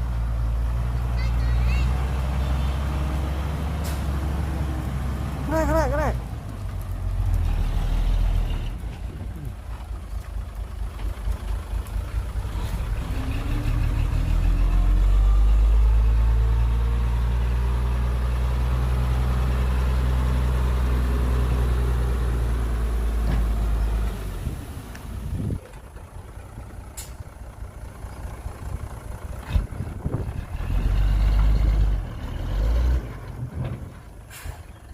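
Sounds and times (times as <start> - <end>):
heavy diesel engine running: 0.0 - 34.9.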